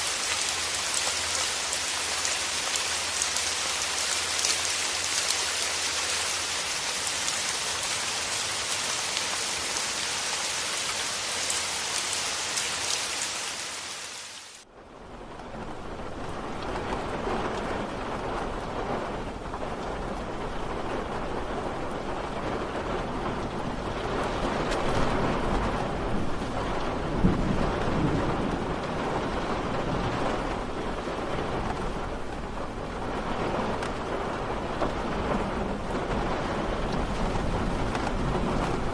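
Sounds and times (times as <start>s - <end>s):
steady rain: 0.0s - 38.9s
rolling thunder: 15.0s - 38.9s.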